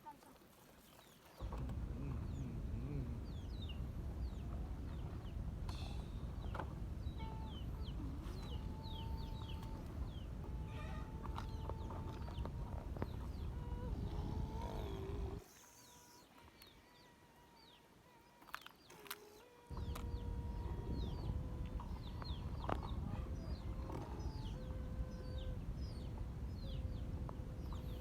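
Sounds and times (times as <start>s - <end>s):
small birds chirping: 0.8s - 28.0s
low rumble: 1.4s - 15.4s, 19.7s - 28.0s
thin steady whine: 1.4s - 16.6s, 19.6s - 28.0s.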